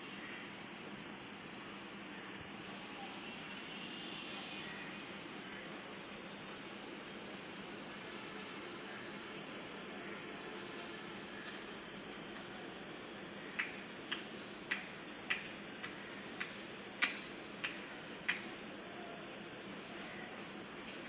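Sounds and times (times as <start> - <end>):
sharp clicks: 13.6 - 18.6.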